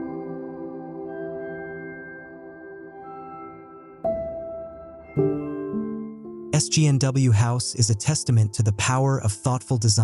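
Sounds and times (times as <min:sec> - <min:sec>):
ambient music ringing tones: 0:00.0 - 0:07.9.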